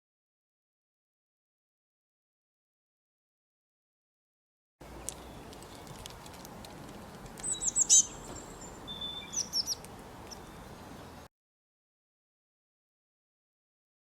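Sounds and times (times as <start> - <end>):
bird chirping and whistling: 7.4 - 10.6.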